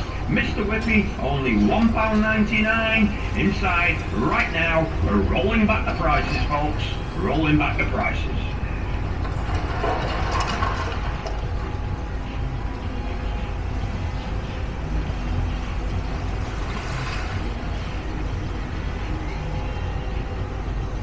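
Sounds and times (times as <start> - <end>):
low outdoor rumble: 0.0 - 21.0
faint high clattering: 8.9 - 12.0.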